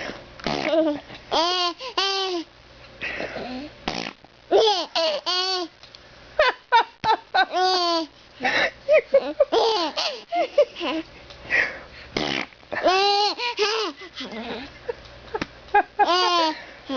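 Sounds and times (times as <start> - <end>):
baby laughing: 0.7 - 2.5, 4.5 - 5.7, 7.4 - 8.1, 9.0 - 11.1, 12.8 - 14.8, 16.0 - 16.6.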